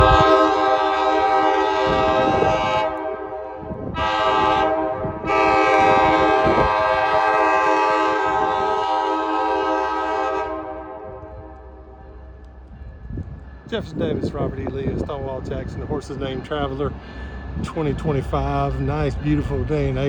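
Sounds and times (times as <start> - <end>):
train horn blasts: 0.0 - 12.2
moving train rumble: 0.0 - 20.0.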